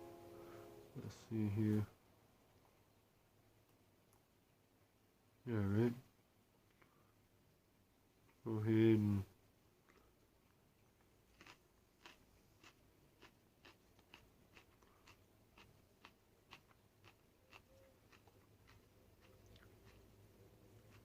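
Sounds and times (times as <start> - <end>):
chewing crisp pepper: 9.8 - 21.0.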